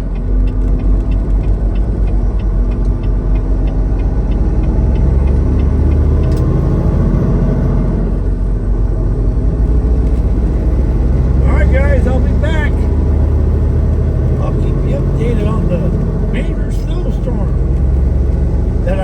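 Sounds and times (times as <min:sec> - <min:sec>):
road noise: 0:00.0 - 0:19.0
truck diesel engine rumble: 0:00.0 - 0:19.0
faint regular ticking: 0:00.1 - 0:07.1.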